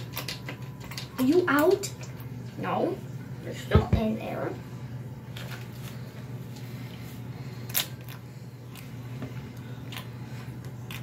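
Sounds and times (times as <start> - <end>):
objects clicking and tapping: 0.0 - 2.2
low steady hum: 0.0 - 11.0.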